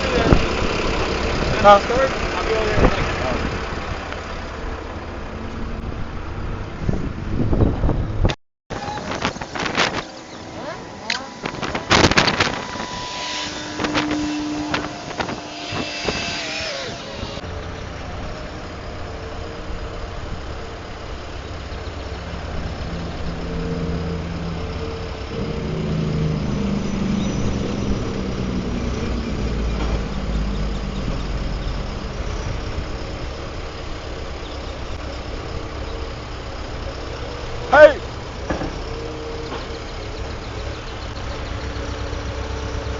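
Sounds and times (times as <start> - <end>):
truck engine idling: 0.0 - 8.0, 8.8 - 42.9.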